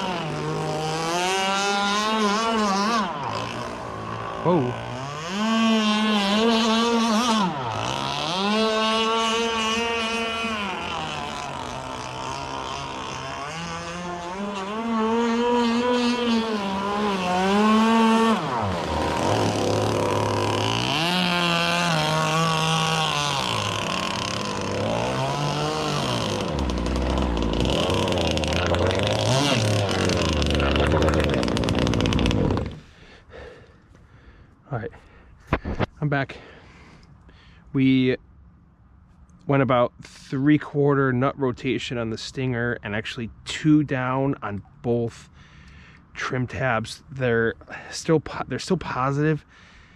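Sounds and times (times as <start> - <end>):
rc boat two-stroke engine: 0.0 - 33.6.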